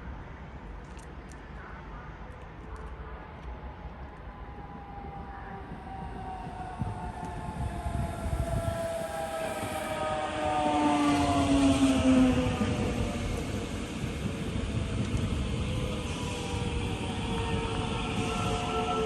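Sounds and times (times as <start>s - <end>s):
electric train motors whining: 4.9s - 19.0s.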